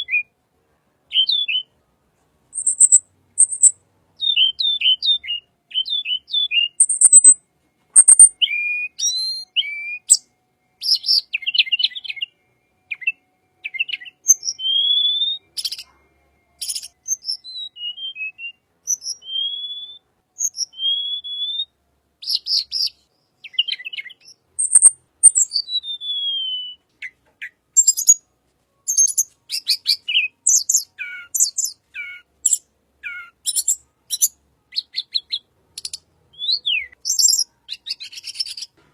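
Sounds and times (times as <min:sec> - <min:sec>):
bird singing chirps and trills: 0:01.1 - 0:01.7, 0:02.5 - 0:28.3, 0:28.9 - 0:38.8.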